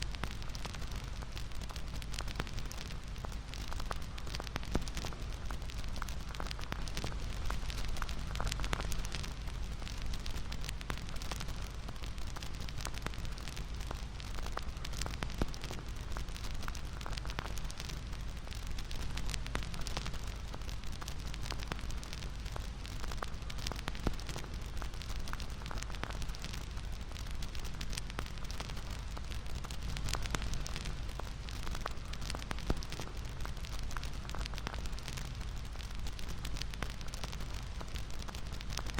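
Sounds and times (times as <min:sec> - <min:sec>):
bonfire crackling: 0:00.0 - 0:38.9.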